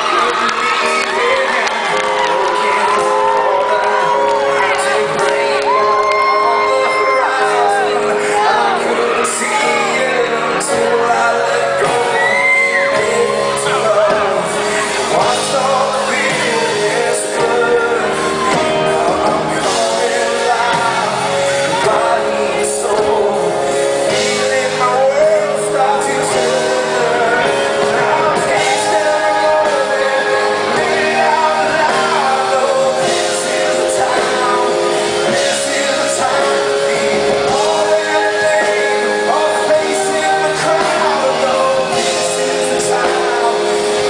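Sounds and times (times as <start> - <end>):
live rock music with singing: 0.0 - 44.0.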